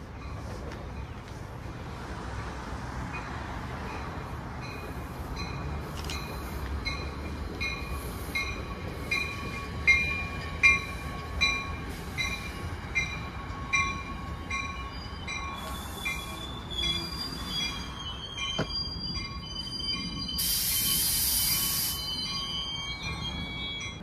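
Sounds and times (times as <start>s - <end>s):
train rail rumble: 0.0s - 24.0s
faint squeal: 14.9s - 24.0s.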